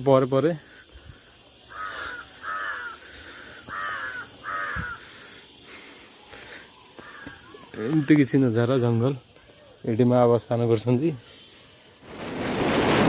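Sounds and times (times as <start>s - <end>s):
crow cawing: 1.6s - 8.3s.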